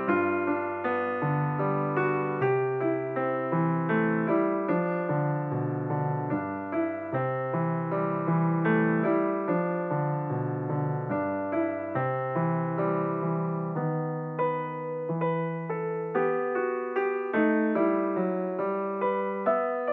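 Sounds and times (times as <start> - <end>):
piano music: 0.0 - 19.9.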